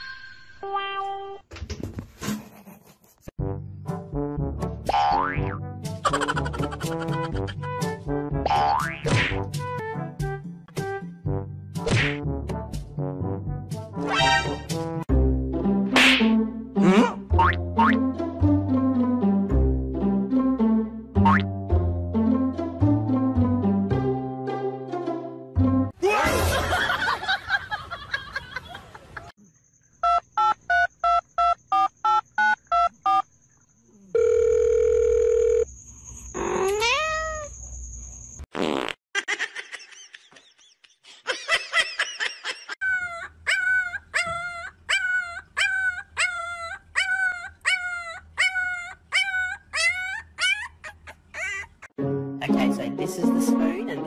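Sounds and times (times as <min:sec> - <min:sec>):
puppy whimpering: 0:43.5 - 0:51.8.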